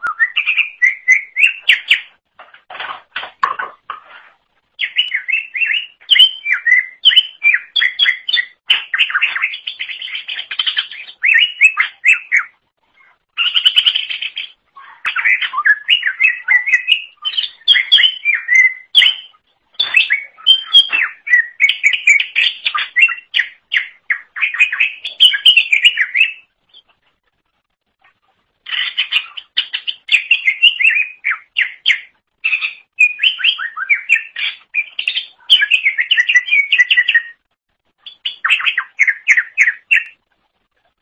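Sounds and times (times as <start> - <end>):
bird singing chattering phrases: 28.6 - 37.4.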